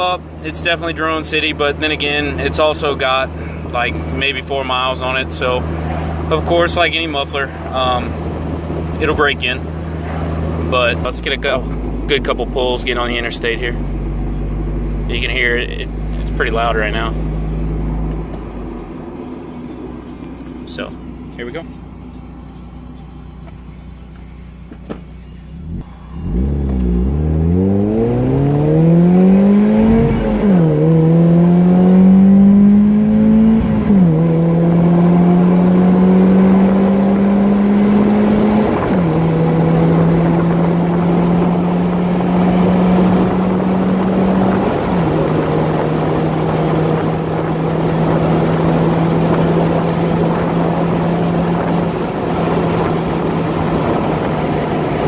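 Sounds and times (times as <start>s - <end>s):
car engine revving and upshifting: 0.0s - 55.0s
wind noise: 36.1s - 55.0s.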